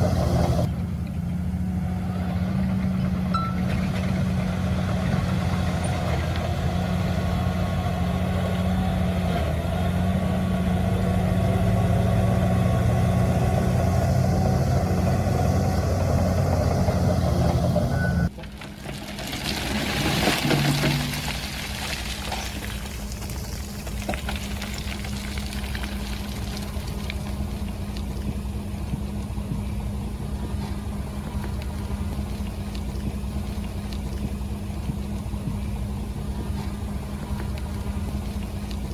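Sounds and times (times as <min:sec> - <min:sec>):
heavy diesel engines running: 0:00.0 - 0:38.9
engine idling: 0:20.4 - 0:38.9.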